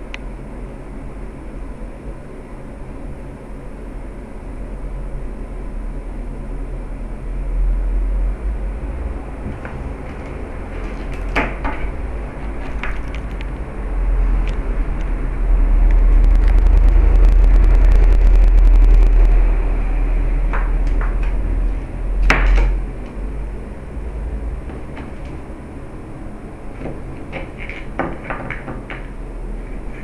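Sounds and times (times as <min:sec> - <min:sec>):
loud low rumble: 0:04.5 - 0:27.1
stone knocking and scraping on floor: 0:26.8 - 0:29.2.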